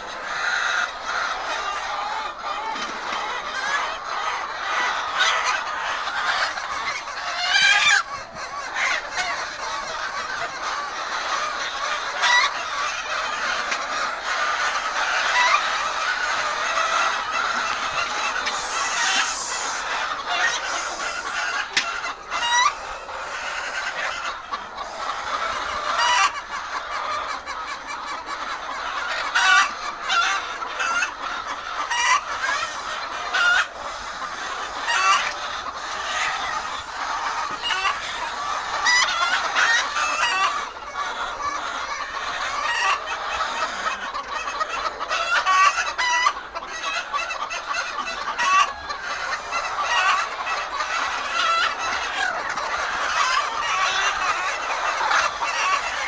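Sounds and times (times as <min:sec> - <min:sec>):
hens clucking: 0:00.0 - 0:56.0.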